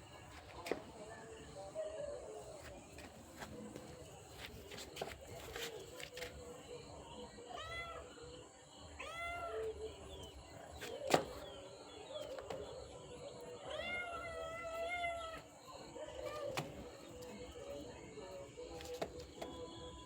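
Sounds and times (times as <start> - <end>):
cat meowing: 13.7 - 15.4.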